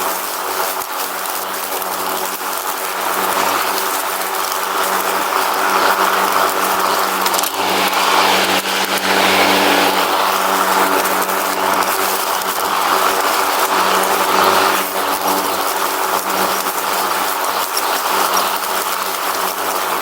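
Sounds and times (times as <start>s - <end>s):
lawn mower engine running: 0.5s - 20.0s
noisy whirr: 3.0s - 17.0s.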